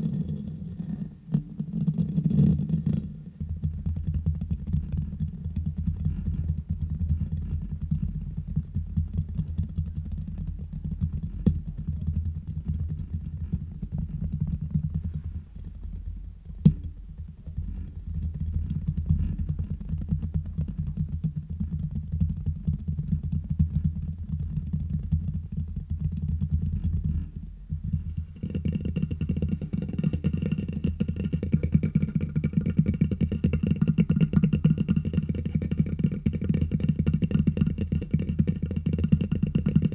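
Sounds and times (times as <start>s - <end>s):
tapping and scratching on microphone: 0.0s - 39.9s
sharp tap on microphone: 9.0s - 22.7s.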